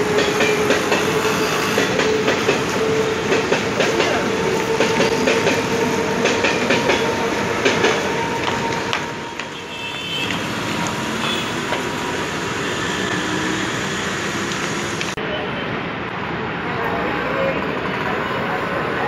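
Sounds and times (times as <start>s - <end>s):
train wheels clacking over joints: 0.0s - 9.6s
train rumble: 0.0s - 19.0s.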